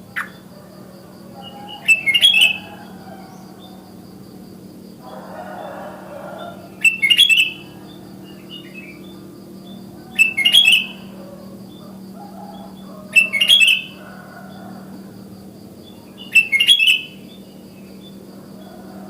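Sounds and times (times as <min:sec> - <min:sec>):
birds chirping: 0:00.0 - 0:19.0
steady low hum: 0:00.0 - 0:19.0.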